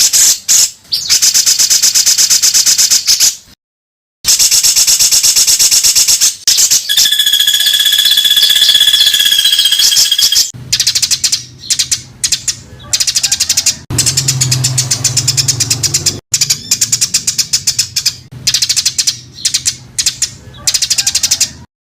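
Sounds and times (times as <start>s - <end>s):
songbird rattling calls: 6.5s - 11.0s
steady whistled note: 6.9s - 10.5s.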